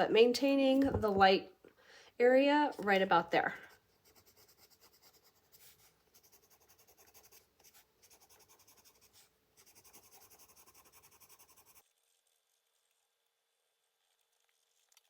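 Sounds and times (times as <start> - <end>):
pencil scratching on paper: 2.7 - 11.9.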